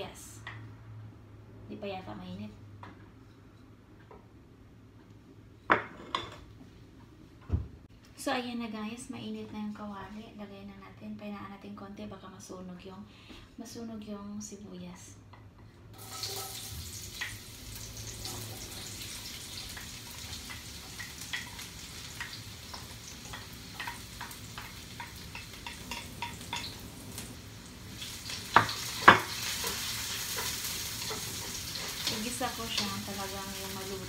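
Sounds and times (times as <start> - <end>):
onion sizzling in oil: 16.0 - 34.0.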